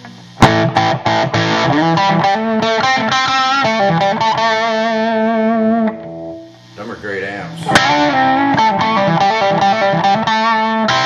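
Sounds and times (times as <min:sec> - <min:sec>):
electric guitar playing: 0:00.0 - 0:06.8, 0:07.4 - 0:11.0.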